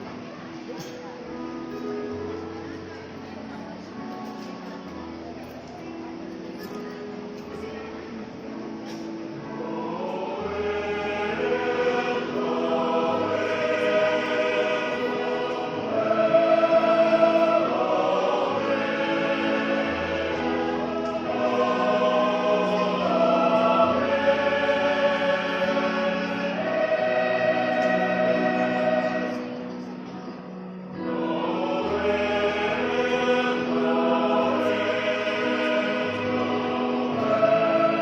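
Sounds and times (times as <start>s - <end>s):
church choir singing: 0.0s - 38.0s.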